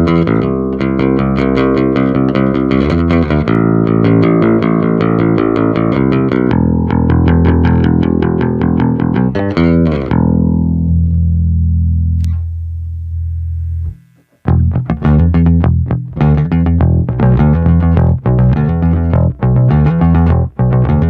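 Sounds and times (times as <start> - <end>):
electric bass notes: 0.0 - 21.0.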